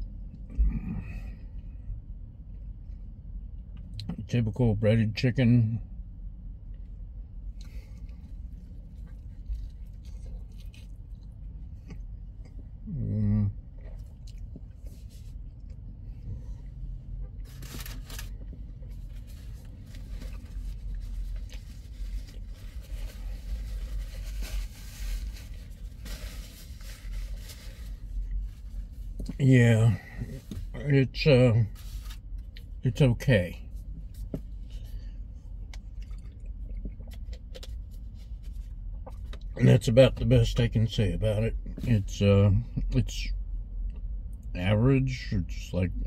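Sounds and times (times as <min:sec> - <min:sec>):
man chewing crunchy food: 0:07.6 - 0:12.6, 0:13.7 - 0:15.9, 0:35.6 - 0:38.0.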